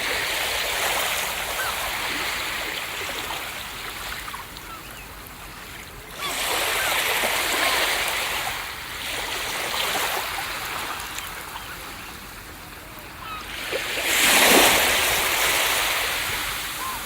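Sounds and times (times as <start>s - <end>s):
ocean waves washing on beach: 0.0s - 17.0s.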